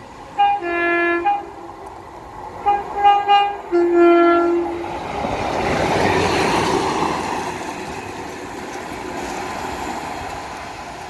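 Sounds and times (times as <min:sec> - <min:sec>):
train diesel engine: 0:00.0 - 0:11.0
train wheels rumbling on rail: 0:00.0 - 0:11.0.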